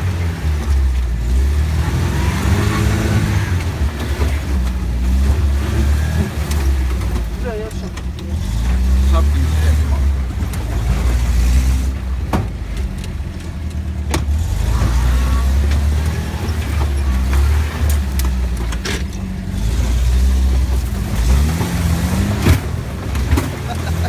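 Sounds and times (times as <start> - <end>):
engine running with uneven hum: 0.0 - 24.0
sharp knocks and clatters: 15.6 - 24.0.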